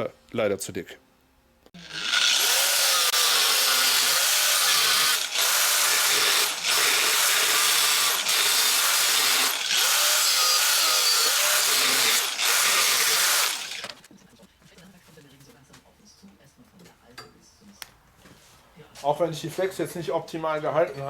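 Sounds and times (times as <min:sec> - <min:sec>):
angle grinder cutting steel: 0:01.8 - 0:14.0.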